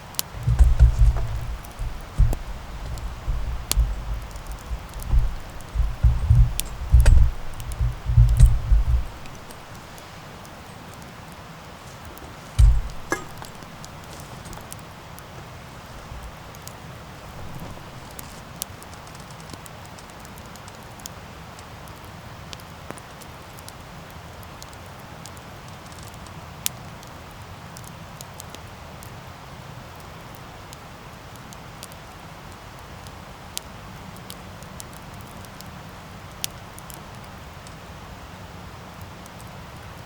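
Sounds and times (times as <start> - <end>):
flames rushing: 0.0 - 19.6
fire crackling and popping: 0.0 - 21.2.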